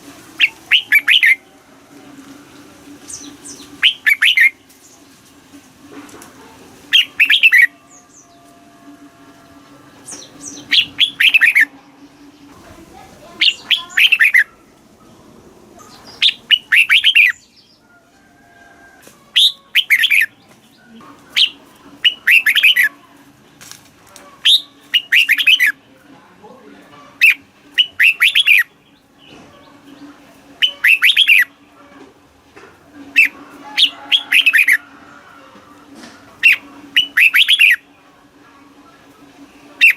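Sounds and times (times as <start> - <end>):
bird warbling: 0.3 - 1.5, 3.0 - 4.7, 6.6 - 14.8, 15.7 - 17.5, 19.3 - 20.4, 21.1 - 23.0, 24.3 - 25.8, 27.1 - 28.8, 30.6 - 32.1, 32.9 - 38.0, 39.0 - 39.9.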